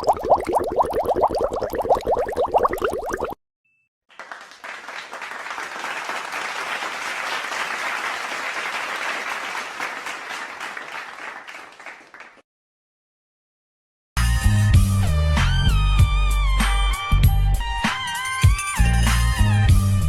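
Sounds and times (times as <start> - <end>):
crowd applause: 4.1 - 12.4.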